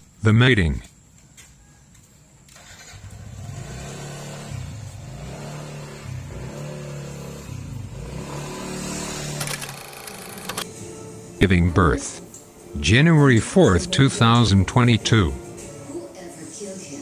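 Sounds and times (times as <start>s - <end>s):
vehicle engine running: 2.8s - 10.6s.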